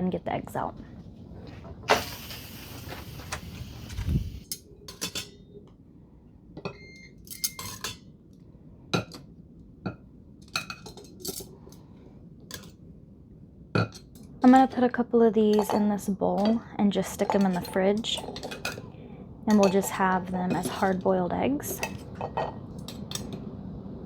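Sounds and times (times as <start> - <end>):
steam valve hissing: 1.9 - 4.5
utensils and dishes clinking: 7.3 - 8.0, 15.5 - 18.9, 19.5 - 23.4.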